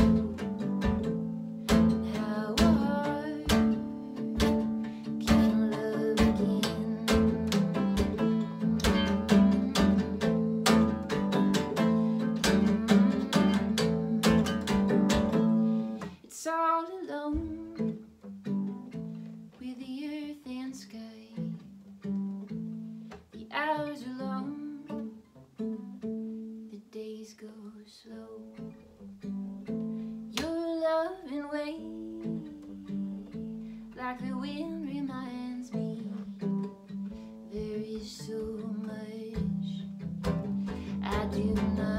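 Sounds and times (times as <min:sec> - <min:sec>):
acoustic guitar strumming: 0:00.0 - 0:16.2, 0:32.0 - 0:41.9
picked guitar melody: 0:00.0 - 0:16.2, 0:28.4 - 0:41.9.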